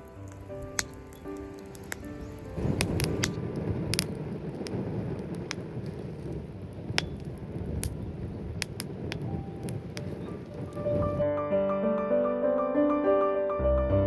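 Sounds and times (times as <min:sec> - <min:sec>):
campfire crackling pops: 0:00.0 - 0:11.2
low rush of flames: 0:00.0 - 0:11.2.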